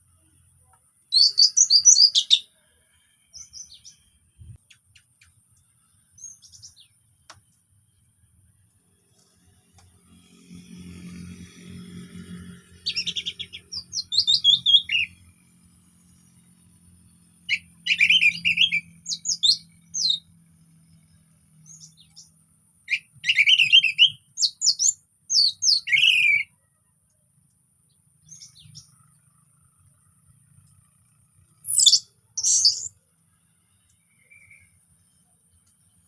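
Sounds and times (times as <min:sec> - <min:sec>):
bird singing whistled phrases: 0:01.1 - 0:02.5, 0:12.9 - 0:15.2, 0:17.5 - 0:20.2, 0:22.9 - 0:26.5, 0:31.6 - 0:33.0.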